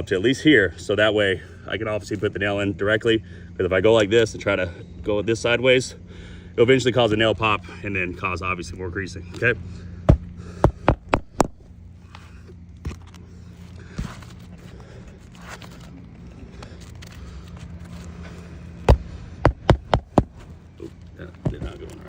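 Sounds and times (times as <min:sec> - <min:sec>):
steady low hum: 0:00.0 - 0:22.0
hammer striking roofing nails: 0:10.1 - 0:11.6, 0:18.9 - 0:20.4.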